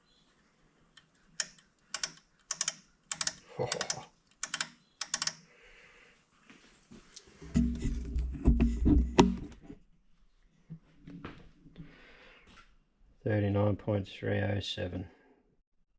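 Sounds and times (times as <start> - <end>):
measuring tool clicking: 1.4 - 5.4
low hum: 7.4 - 9.7.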